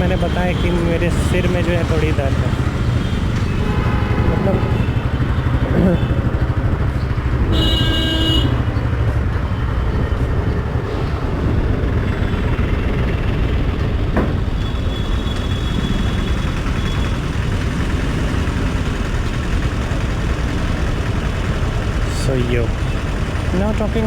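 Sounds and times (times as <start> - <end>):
motorcycle engine running: 0.0 - 24.0
traffic noise: 0.0 - 24.0
vehicle horn: 2.9 - 6.2, 7.4 - 8.8.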